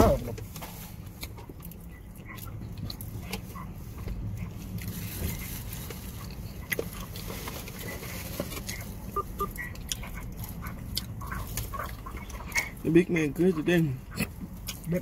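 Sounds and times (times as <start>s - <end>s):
low steady hum: 0.0s - 15.0s
chewing and biting food: 0.9s - 15.0s.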